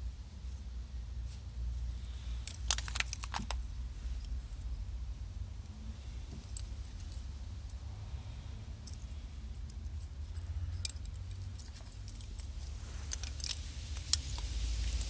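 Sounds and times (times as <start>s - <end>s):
plastic connectors clicking and rattling: 2.2s - 4.3s, 8.8s - 15.0s.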